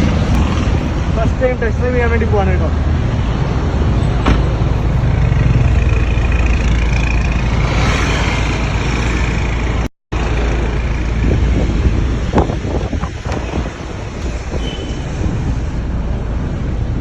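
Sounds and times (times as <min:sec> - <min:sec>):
faint rising whine: 0:07.5 - 0:09.9.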